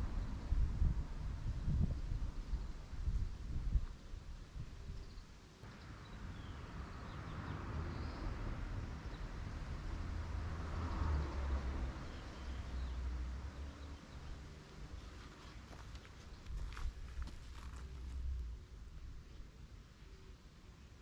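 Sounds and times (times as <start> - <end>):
wind buffeting microphone: 0.0 - 5.2, 15.7 - 18.5.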